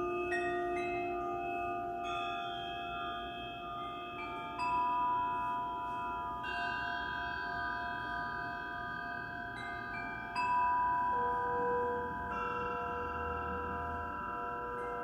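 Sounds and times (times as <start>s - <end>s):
metal chimes ringing: 0.0s - 15.0s.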